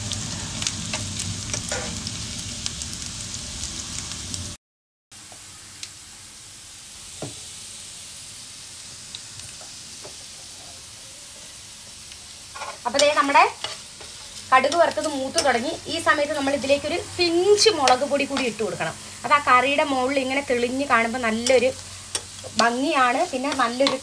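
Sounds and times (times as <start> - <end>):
food sizzling in a frying pan: 0.0 - 4.6, 5.2 - 24.0
steel spoon stirring in a pan: 0.2 - 2.1, 12.4 - 19.2, 20.4 - 24.0.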